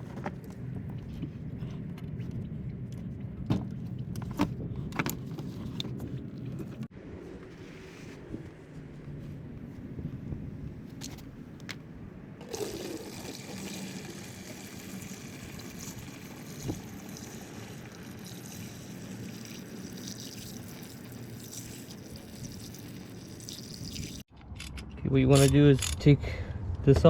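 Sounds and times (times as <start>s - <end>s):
coolant trickling and splashing: 12.4s - 24.3s.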